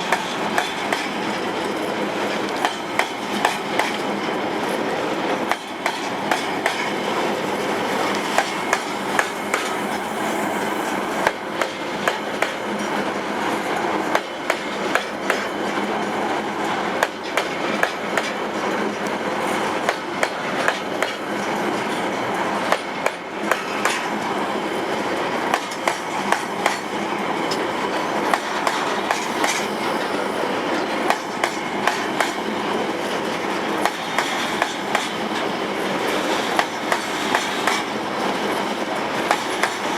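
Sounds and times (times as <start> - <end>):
wheels clicking on rail joints: 0.0 - 39.9.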